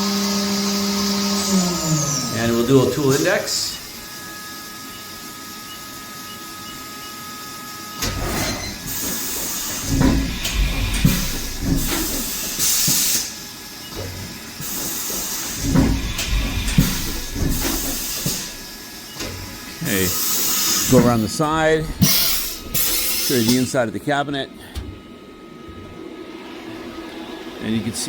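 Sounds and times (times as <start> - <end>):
machine hum: 0.0 - 28.0
tool changer clunks and knocks: 8.0 - 13.0, 15.1 - 19.6
air hiss bursts: 8.8 - 13.4, 14.6 - 23.7.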